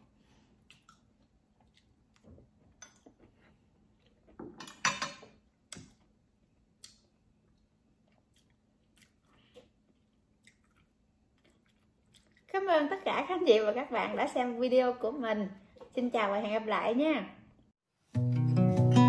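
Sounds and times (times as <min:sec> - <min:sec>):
person chewing crispy food: 0:00.5 - 0:02.7, 0:05.7 - 0:12.5.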